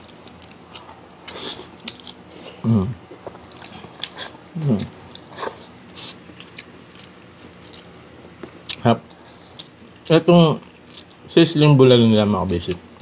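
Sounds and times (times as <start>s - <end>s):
person chewing and lip smacking: 0.0s - 9.9s, 10.6s - 11.3s
person humming: 2.5s - 3.0s, 4.6s - 4.9s.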